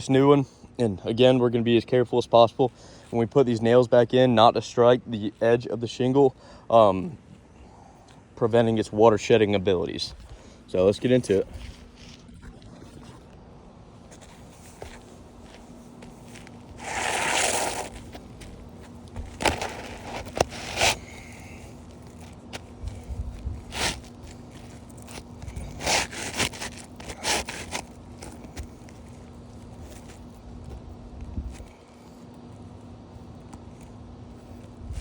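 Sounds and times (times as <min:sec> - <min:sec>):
knocks and scuffs: 0:14.0 - 0:31.7
shingle scraping on roof: 0:14.2 - 0:23.0, 0:23.6 - 0:30.3.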